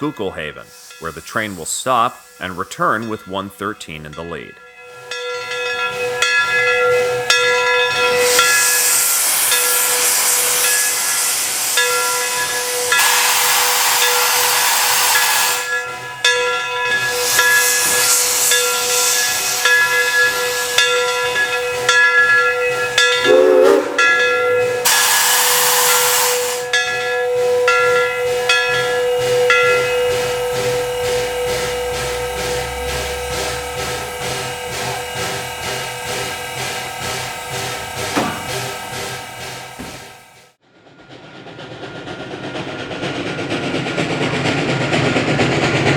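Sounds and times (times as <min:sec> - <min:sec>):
steam locomotive hissing bursts: 0:00.0 - 0:45.9
steady tone: 0:11.8 - 0:25.1.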